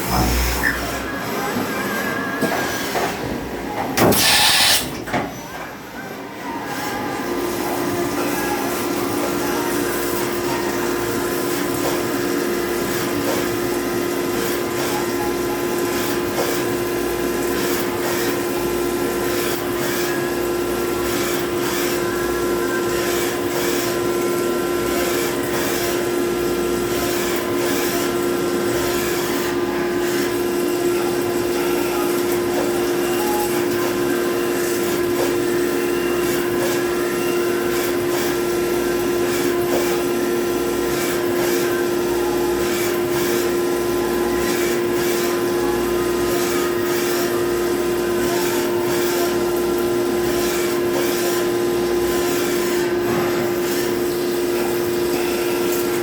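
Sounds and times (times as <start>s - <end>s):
machine drilling drone: 4.0s - 4.9s.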